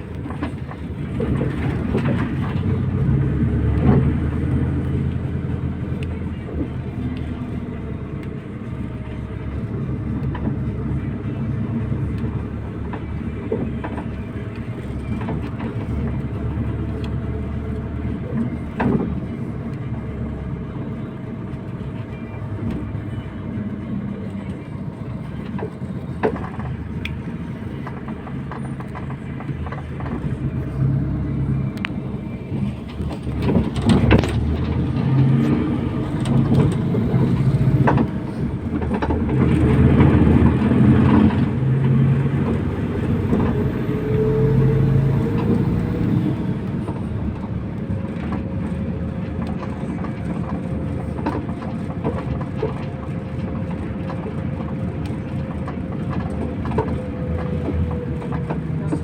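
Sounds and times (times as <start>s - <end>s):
bus diesel engine running: 0.0s - 59.0s
body rattles and knocks: 32.6s - 41.6s.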